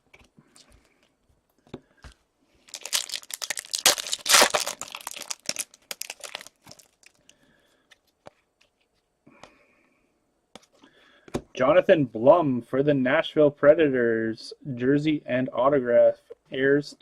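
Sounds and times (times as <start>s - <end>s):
wrapper crinkling and tearing: 2.6s - 7.3s.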